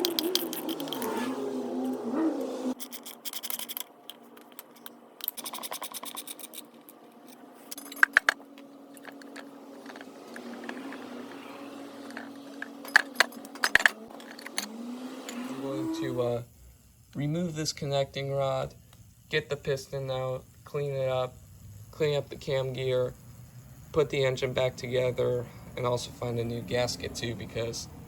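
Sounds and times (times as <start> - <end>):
metal parts clinking and scraping: 0.0 - 1.2, 2.8 - 11.1, 12.0 - 14.7.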